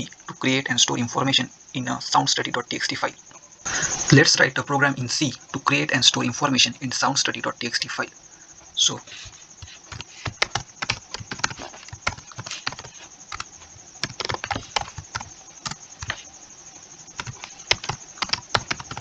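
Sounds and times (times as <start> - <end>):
typing on computer keyboard: 9.6 - 16.3, 17.2 - 19.0.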